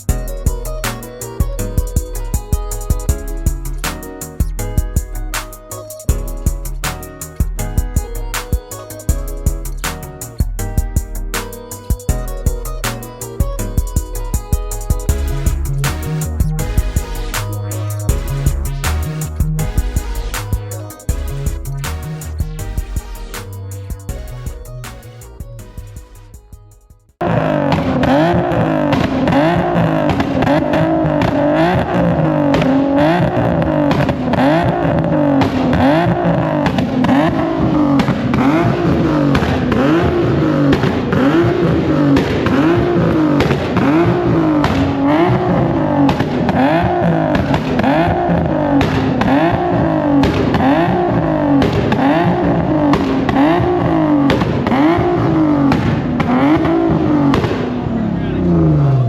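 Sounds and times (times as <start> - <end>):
car engine revving: 15.1 - 23.8, 27.2 - 59.0.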